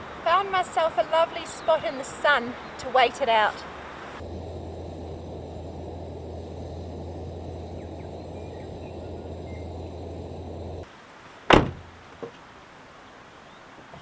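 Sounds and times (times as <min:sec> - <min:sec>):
low hum and hiss: 0:00.0 - 0:13.3
car door shutting: 0:11.5 - 0:11.9.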